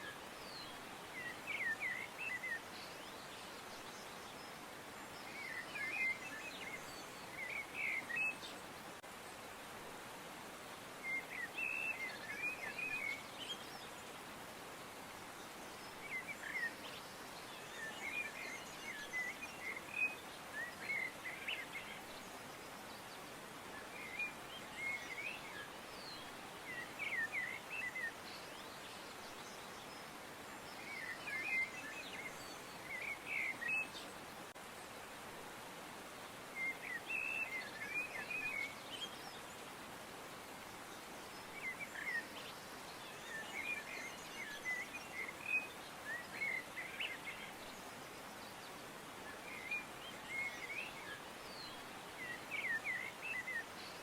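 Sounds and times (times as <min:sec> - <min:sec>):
steady background hiss: 0:00.0 - 0:54.0
small birds chirping: 0:36.1 - 0:54.0.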